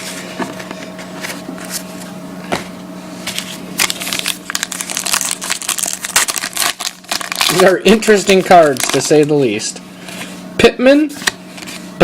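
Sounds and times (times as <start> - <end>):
steady low hum: 0.0 - 12.0
cards snapping and rustling: 3.3 - 9.4, 11.2 - 11.8.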